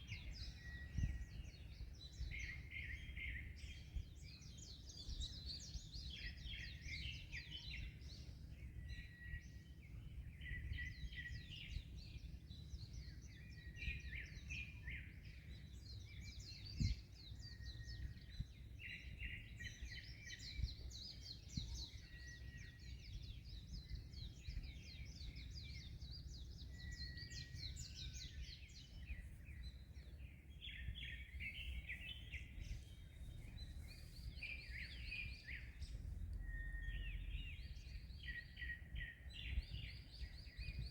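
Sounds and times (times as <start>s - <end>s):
many birds chirping: 0.0s - 40.9s.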